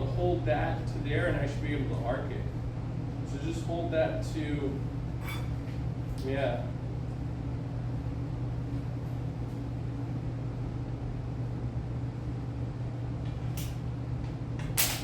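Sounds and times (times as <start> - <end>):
low electrical hum: 0.0 - 15.0
electrical arc crack: 14.6 - 15.0.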